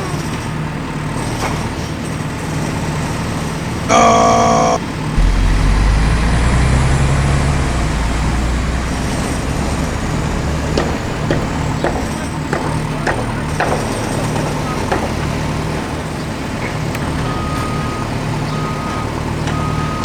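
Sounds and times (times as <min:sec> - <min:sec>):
vehicle horn: 0:03.9 - 0:12.0
heavy vehicle engine rumbling: 0:03.9 - 0:20.0
faint knocks: 0:05.2 - 0:12.2.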